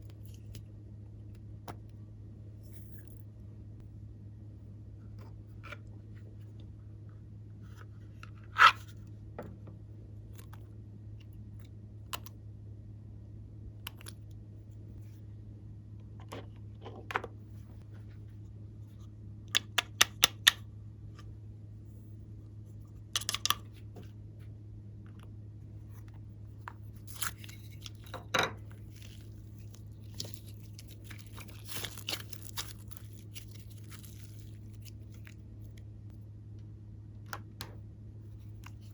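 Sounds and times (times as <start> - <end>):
steady low hum: 0.0 - 38.9
slime clicking and crackling: 28.9 - 35.4.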